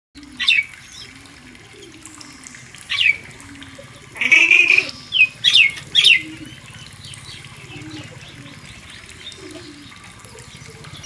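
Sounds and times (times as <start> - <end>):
low wavering bird call: 2.9 - 6.6.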